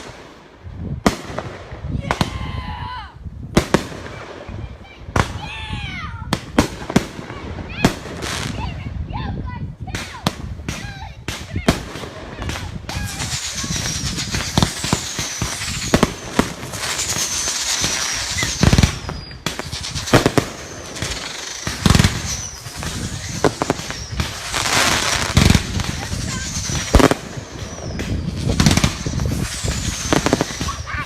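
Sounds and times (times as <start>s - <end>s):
fireworks bangs and pops: 0.0s - 2.6s, 3.5s - 9.0s, 9.8s - 31.0s
falling firework whistles: 12.5s - 31.0s.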